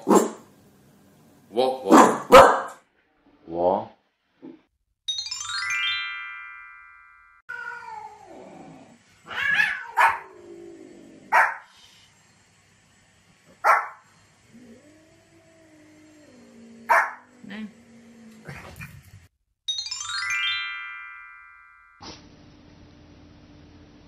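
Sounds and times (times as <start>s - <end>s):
bright chime: 5.1s - 7.4s, 19.7s - 22.0s
cat meowing: 7.5s - 8.4s, 9.2s - 10.4s
small dog yapping: 9.3s - 10.3s.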